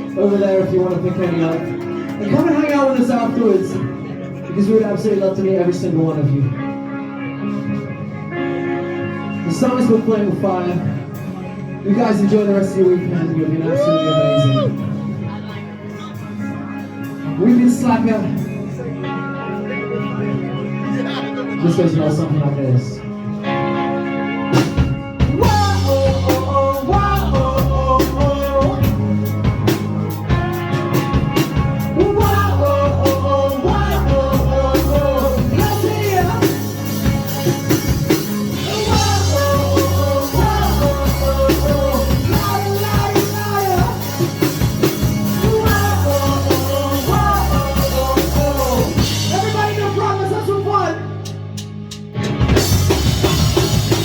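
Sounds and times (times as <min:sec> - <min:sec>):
live rock band playing: 0:00.0 - 0:54.0
lead vocal singing: 0:25.3 - 0:29.8, 0:31.8 - 0:51.2.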